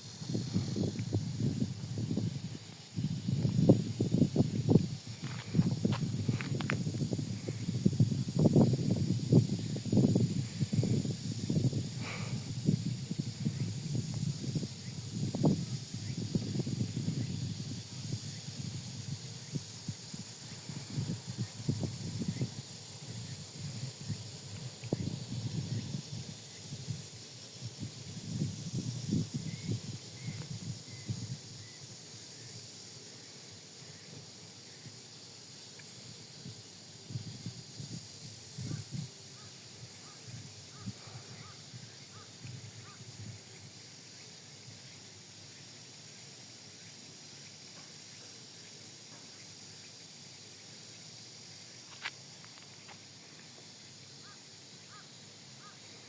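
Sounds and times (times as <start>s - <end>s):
wind buffeting microphone: 0.0s - 31.6s, 36.4s - 39.2s
insects chirring: 0.0s - 56.0s.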